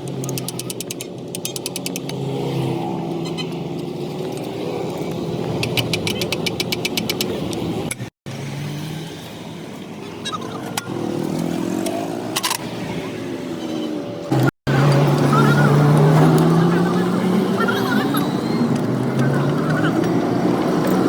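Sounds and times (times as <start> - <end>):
vehicle engine running: 14.2 - 21.0.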